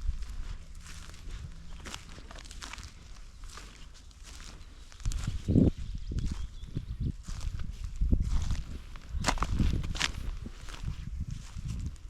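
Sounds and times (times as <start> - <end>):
crunches in dry leaf litter: 0.0 - 5.4
low rumble: 0.0 - 12.0.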